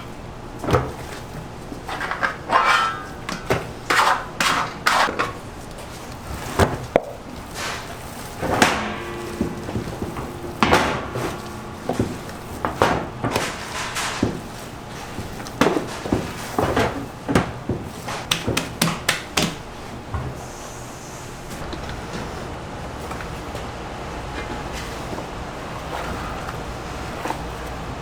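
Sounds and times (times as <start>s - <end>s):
hard objects knocking and clattering: 8.3s - 19.6s.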